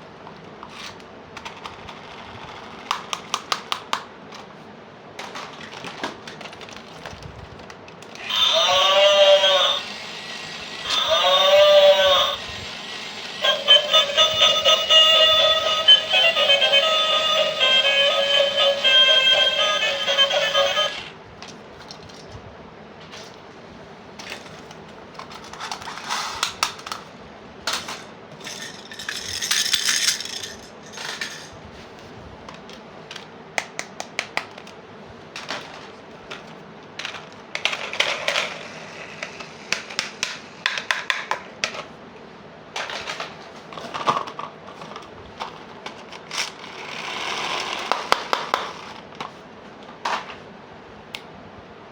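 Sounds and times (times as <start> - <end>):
plastic toy pieces clicking: 28.5 - 31.4.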